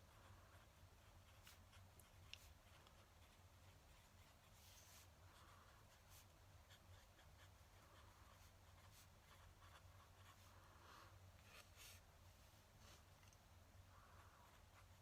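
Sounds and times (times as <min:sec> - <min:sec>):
pen nib scratching on paper: 0:00.0 - 0:10.6.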